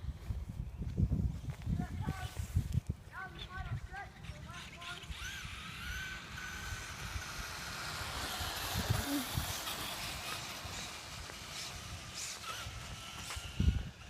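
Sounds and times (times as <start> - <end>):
radio-controlled car motor whine: 4.2 - 14.0.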